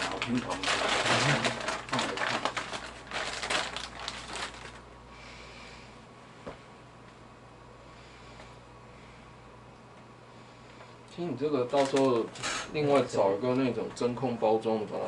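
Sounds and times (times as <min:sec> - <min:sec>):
plastic packaging crinkling: 0:00.0 - 0:04.9, 0:11.4 - 0:13.2.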